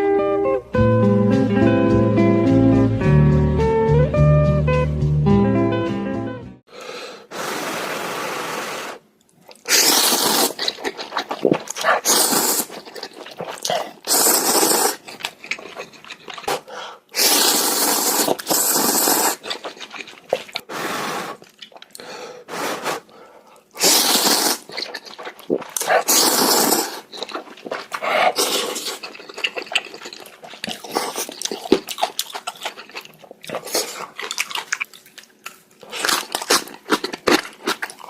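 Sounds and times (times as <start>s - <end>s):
noodles being slurped: 7.4s - 38.0s.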